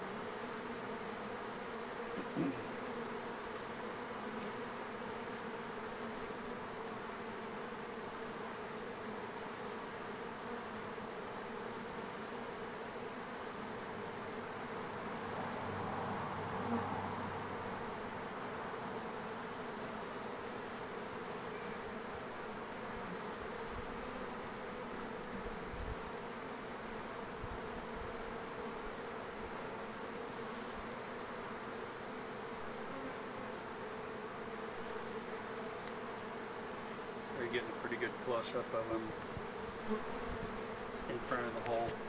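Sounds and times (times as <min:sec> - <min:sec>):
bee swarm buzzing: 0:00.0 - 0:42.0.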